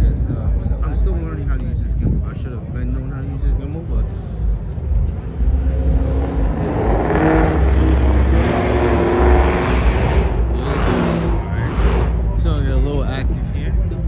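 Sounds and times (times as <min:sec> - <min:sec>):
car engine running: 0:03.8 - 0:14.0.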